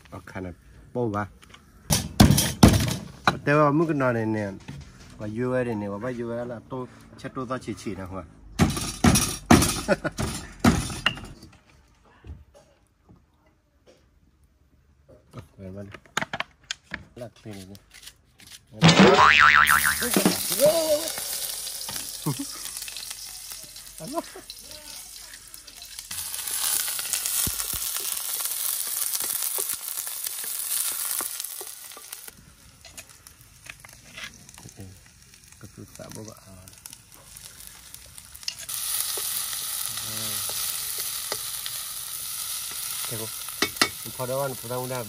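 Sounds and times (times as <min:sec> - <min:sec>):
food sizzling in a wok: 0:19.2 - 0:45.0.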